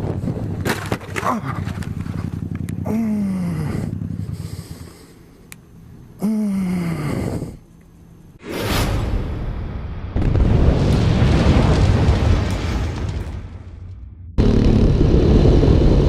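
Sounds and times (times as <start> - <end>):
motorcycle engine running: 0.2 - 5.2.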